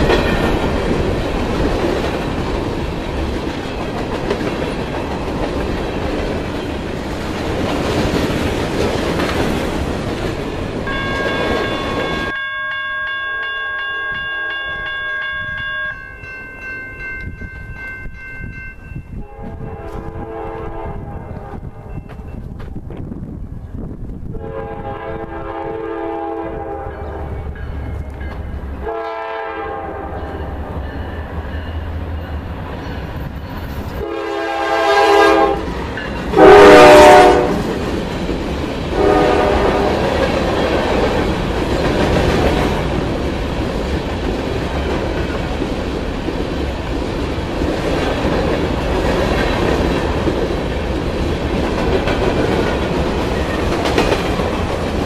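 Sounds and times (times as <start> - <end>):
wheels clattering on rail: 0.0 - 12.4, 27.0 - 28.8, 35.4 - 55.0
locomotive horn blasts: 19.2 - 21.7, 24.3 - 27.3, 28.8 - 30.2, 34.0 - 35.7, 36.3 - 37.7, 39.0 - 40.0.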